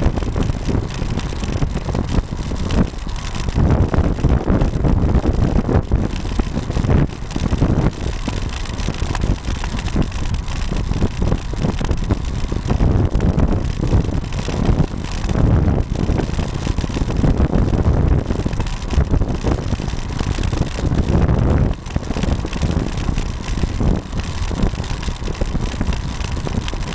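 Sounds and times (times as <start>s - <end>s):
bicycle jolts: 0.0s - 26.9s
wind buffeting microphone: 0.0s - 26.9s.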